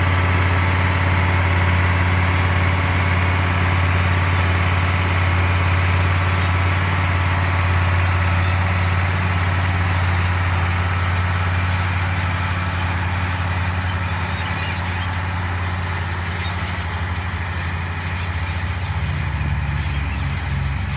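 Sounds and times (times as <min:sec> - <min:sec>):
tractor diesel engine running: 0:00.0 - 0:20.9.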